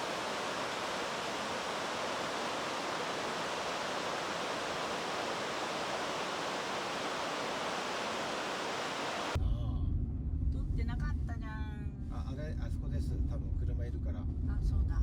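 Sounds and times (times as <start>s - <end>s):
mountain stream rushing: 0.0s - 9.4s.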